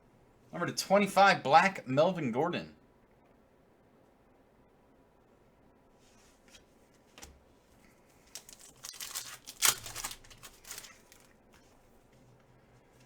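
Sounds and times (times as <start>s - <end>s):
wrapper tearing and crinkling: 8.2s - 11.4s.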